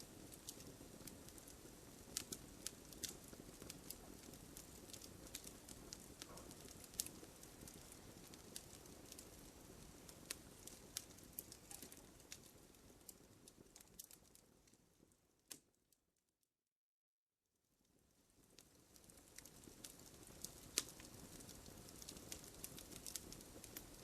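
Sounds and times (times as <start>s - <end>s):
campfire crackling and popping: 0.0s - 15.7s, 18.2s - 24.0s.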